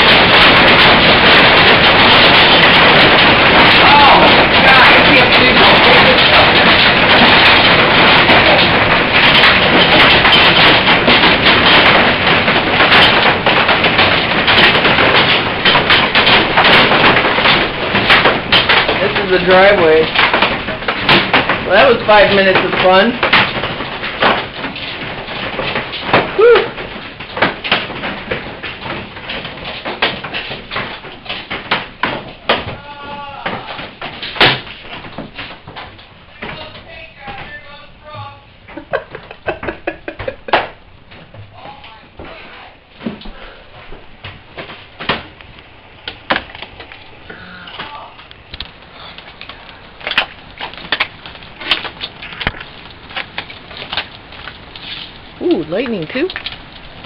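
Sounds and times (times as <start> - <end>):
hail pounding a roof: 0.0 - 57.0
hiss of falling ice and rain: 45.9 - 57.0.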